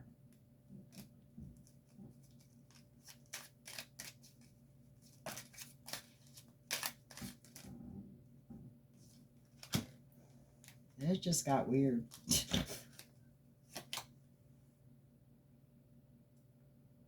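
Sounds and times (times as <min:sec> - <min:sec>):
faint steady hum: 0:00.0 - 0:17.0
cards being shuffled: 0:00.9 - 0:07.7, 0:09.1 - 0:10.0, 0:12.1 - 0:14.1.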